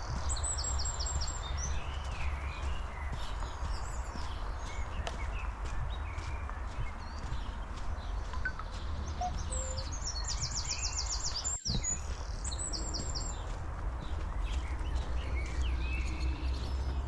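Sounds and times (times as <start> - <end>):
songbird trilling: 8.0 - 12.1.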